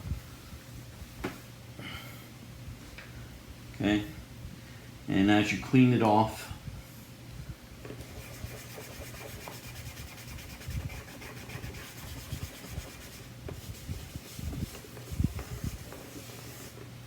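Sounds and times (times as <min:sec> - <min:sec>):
cloth wiping plastic cover: 0:08.1 - 0:16.9.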